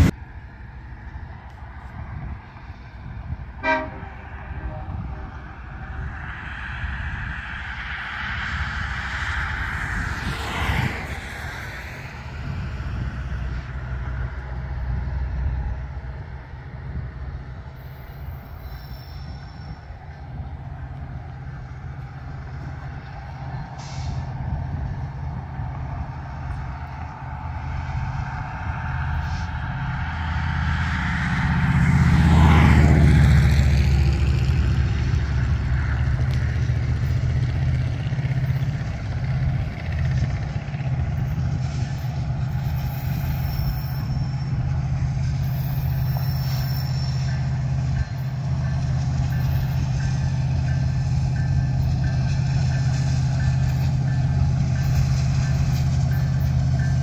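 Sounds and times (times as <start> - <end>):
road vehicle passing: 0.0 - 18.6, 19.7 - 46.4
distant freight train rumble: 0.0 - 57.0.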